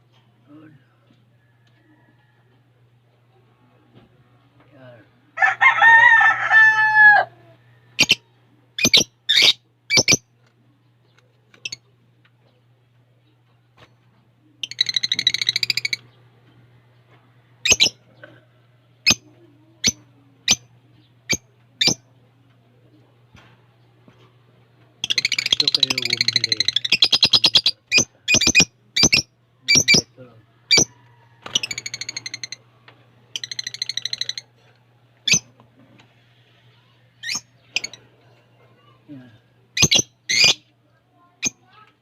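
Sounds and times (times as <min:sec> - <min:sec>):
faint low hum: 0:00.0 - 0:42.0
lovebird chattering trill: 0:08.0 - 0:08.2, 0:08.8 - 0:10.2, 0:14.6 - 0:16.0, 0:17.6 - 0:18.0, 0:25.0 - 0:30.1, 0:30.7 - 0:30.9, 0:33.3 - 0:34.5, 0:35.3 - 0:35.5, 0:39.8 - 0:40.6
bird squawk: 0:08.8 - 0:10.2, 0:30.7 - 0:30.9, 0:39.8 - 0:40.6
lovebird short high chirps: 0:08.8 - 0:10.2, 0:39.8 - 0:40.6.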